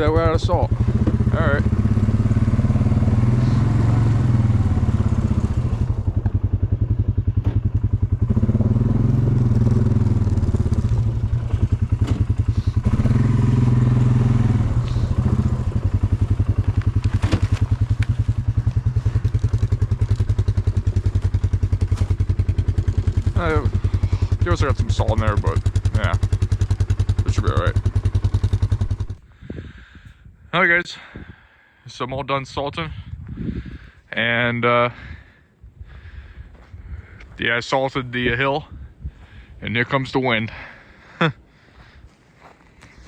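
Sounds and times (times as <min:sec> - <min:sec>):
vehicle engine revving: 0:00.0 - 0:29.2.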